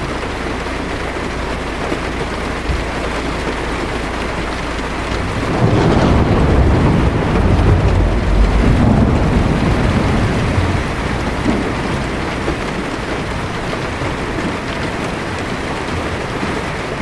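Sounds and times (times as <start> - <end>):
heavy rain on car windshield: 0.0 - 17.0
thunder rumbling: 0.0 - 17.0.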